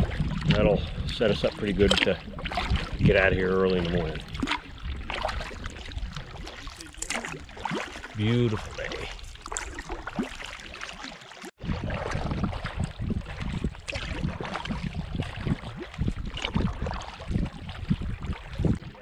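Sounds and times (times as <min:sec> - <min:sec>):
wind buffeting microphone: 0:00.0 - 0:06.9, 0:11.6 - 0:19.0
water sloshing with paddle strokes: 0:00.0 - 0:19.0.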